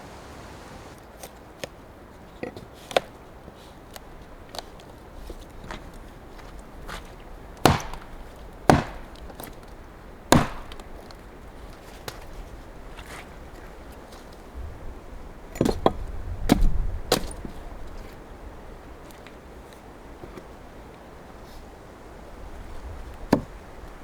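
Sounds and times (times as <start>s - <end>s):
heavy axe blows on wood: 7.6s - 9.2s, 10.3s - 10.9s.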